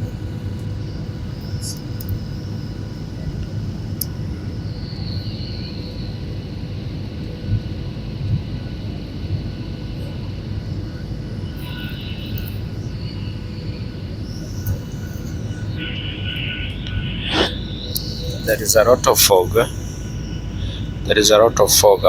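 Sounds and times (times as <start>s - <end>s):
airliner cabin engine rumble: 0.0s - 22.0s
thin whining tones: 9.8s - 22.0s.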